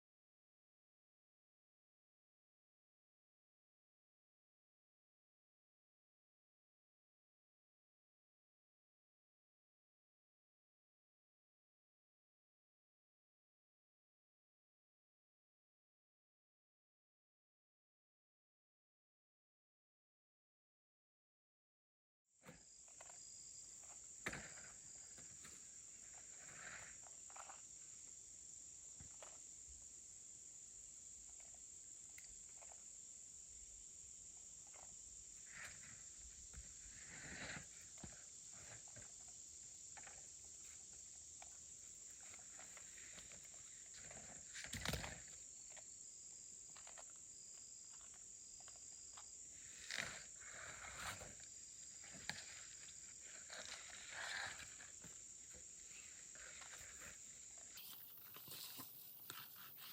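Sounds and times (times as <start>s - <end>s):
insects chorus: 22.4s - 59.9s.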